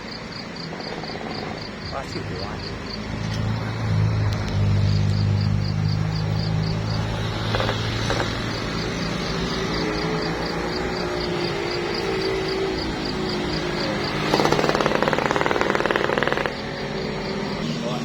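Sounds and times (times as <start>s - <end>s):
vehicle engine and road noise: 0.0s - 18.0s
fast even rattling: 7.4s - 8.9s, 13.3s - 17.3s.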